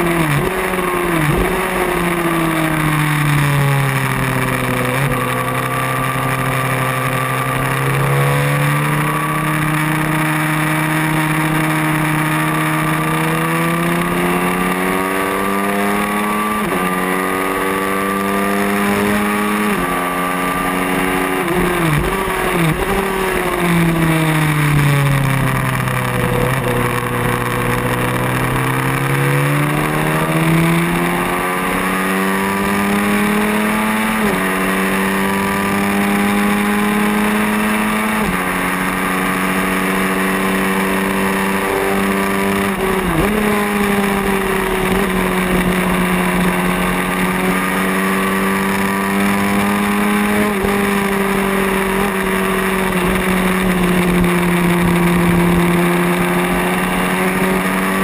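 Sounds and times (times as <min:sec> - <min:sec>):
racing motorcycle engine: 0:00.0 - 0:58.0.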